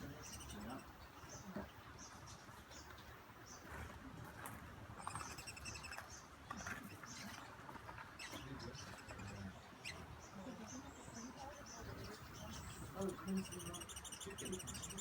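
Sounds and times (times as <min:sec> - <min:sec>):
hummingbirds chirping: 0:00.0 - 0:03.6, 0:08.2 - 0:15.0.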